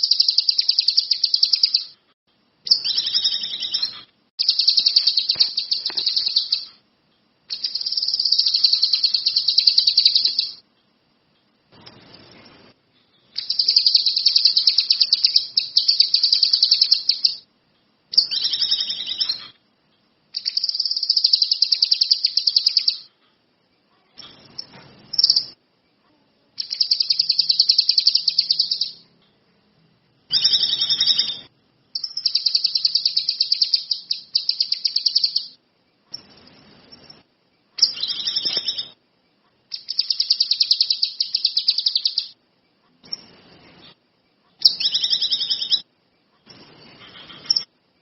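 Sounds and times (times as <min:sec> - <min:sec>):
songbird singing rapid trills: 0:00.0 - 0:02.0, 0:02.7 - 0:06.8, 0:07.5 - 0:10.6, 0:13.4 - 0:17.4, 0:20.4 - 0:23.1, 0:26.6 - 0:29.0, 0:30.3 - 0:35.6, 0:39.7 - 0:42.4, 0:44.6 - 0:45.8.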